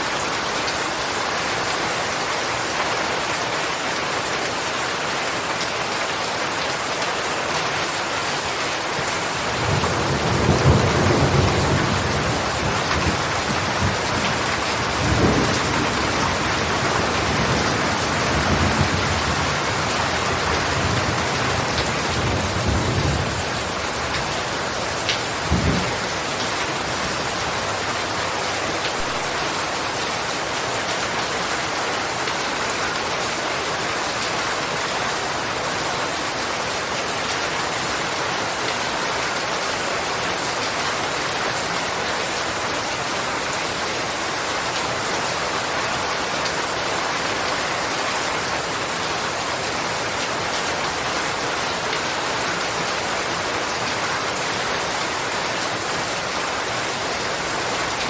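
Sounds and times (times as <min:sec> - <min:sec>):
steady rain: 0:00.0 - 0:58.0
thunder rumbling: 0:25.2 - 0:27.6.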